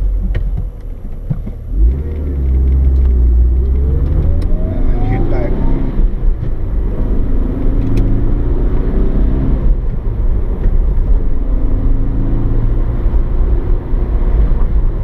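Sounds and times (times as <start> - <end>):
car engine running: 0.0 - 9.0
low road rumble: 0.0 - 15.0.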